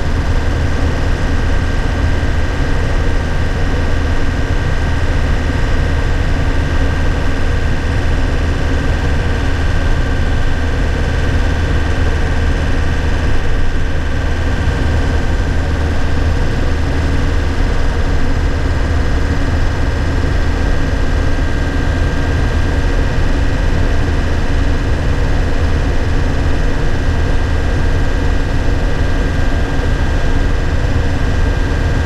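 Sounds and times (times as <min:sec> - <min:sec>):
diesel engine low drone: 0:00.0 - 0:32.0
engine whine: 0:00.0 - 0:32.0.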